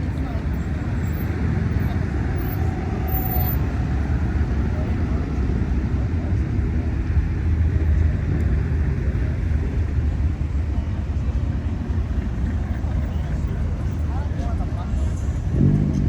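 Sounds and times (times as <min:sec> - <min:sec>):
car engines cruising past: 0:11.8 - 0:16.0.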